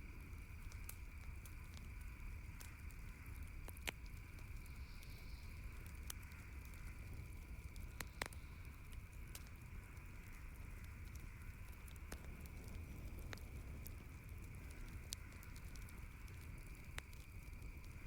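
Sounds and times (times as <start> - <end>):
campfire crackling: 0.0 - 18.0
low background hiss: 0.0 - 18.0.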